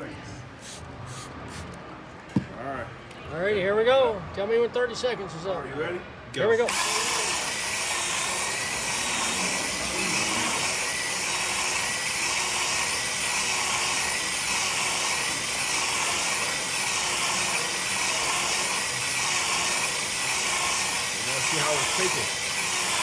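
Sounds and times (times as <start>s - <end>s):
power tool whirring: 6.6s - 23.0s.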